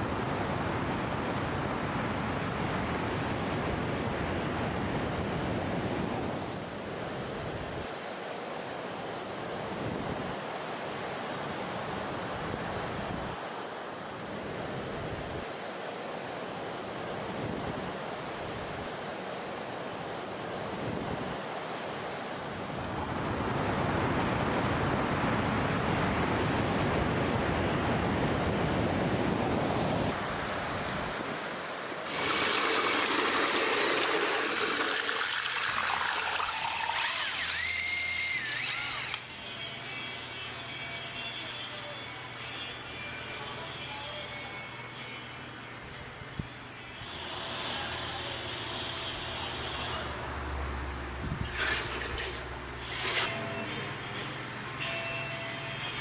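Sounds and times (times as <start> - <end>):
waves washing onto beach: 0.0 - 37.5.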